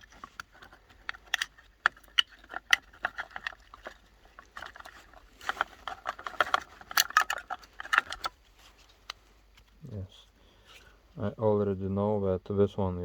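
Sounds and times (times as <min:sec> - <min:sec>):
plastic clicking and rattling: 0:00.0 - 0:09.8.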